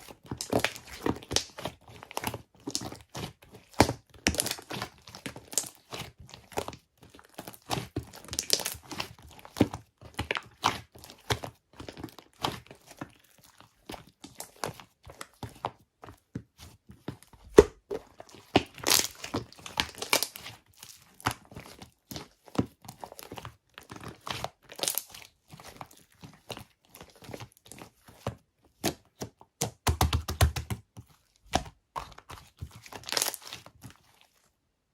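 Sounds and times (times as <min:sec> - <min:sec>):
slime crackling and popping: 0:00.0 - 0:06.7, 0:07.3 - 0:11.3, 0:17.5 - 0:22.4, 0:24.0 - 0:25.3, 0:32.7 - 0:33.7.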